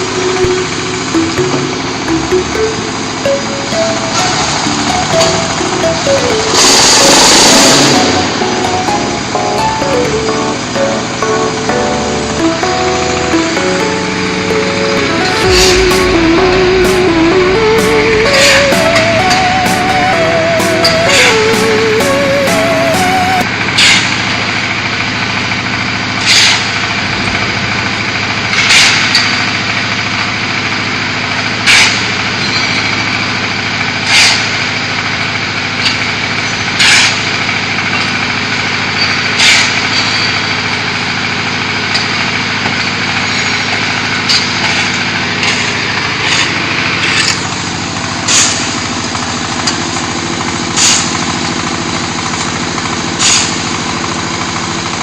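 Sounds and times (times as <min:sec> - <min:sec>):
block machine engine hum: 0:00.0 - 0:23.6.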